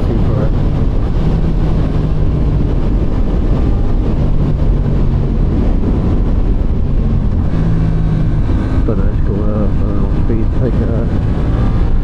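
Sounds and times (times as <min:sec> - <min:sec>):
motorcycle engine running: 0:00.0 - 0:12.0
wind noise on microphone: 0:00.0 - 0:12.0.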